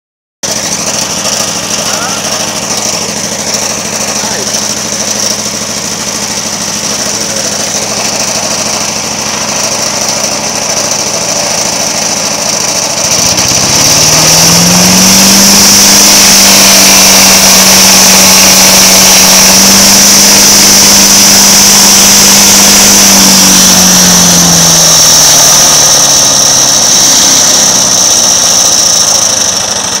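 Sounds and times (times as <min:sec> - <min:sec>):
wood chipper engine whining: 0:00.4 - 0:30.0.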